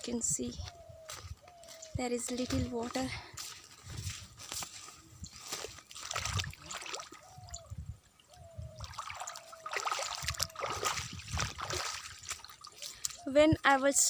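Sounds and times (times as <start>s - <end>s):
water trickling and splashing: 2.8s - 13.8s.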